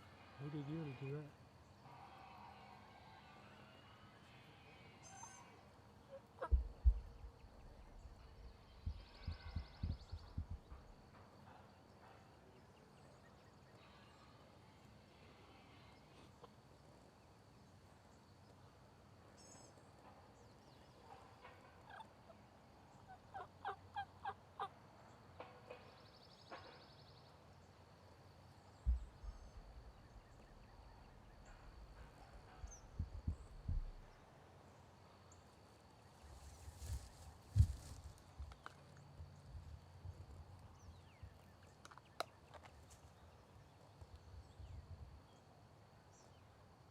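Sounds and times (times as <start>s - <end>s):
wild turkey calling: 21.1s - 22.4s, 23.0s - 24.8s.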